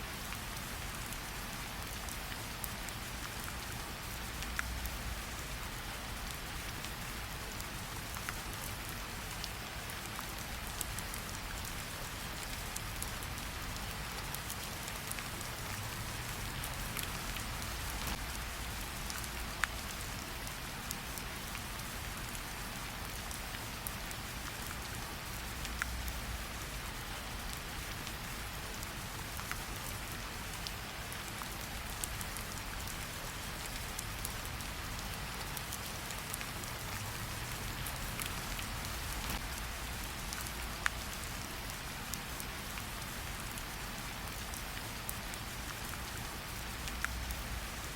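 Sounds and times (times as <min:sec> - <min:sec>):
steady rain hiss: 0:00.0 - 0:47.9.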